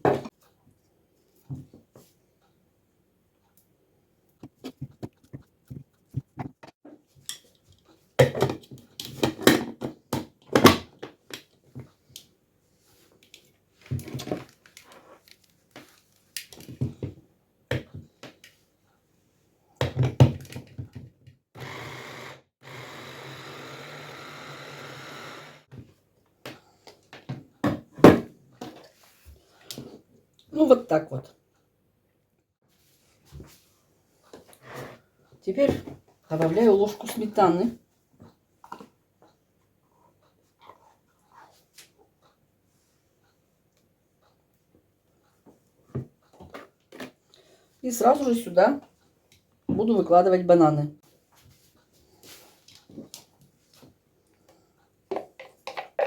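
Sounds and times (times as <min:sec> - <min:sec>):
electric food chopper running: 0:21.6 - 0:25.7.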